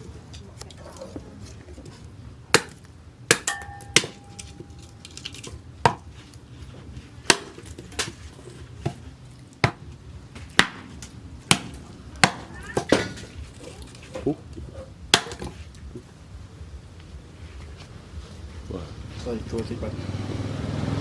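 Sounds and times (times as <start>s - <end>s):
axe chopping wood: 2.5s - 6.2s, 7.2s - 16.1s.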